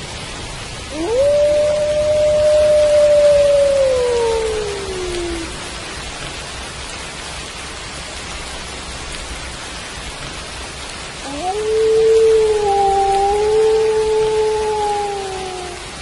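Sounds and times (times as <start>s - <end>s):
steady rain: 0.0s - 16.0s
wolf howling: 0.9s - 5.8s, 11.2s - 16.0s.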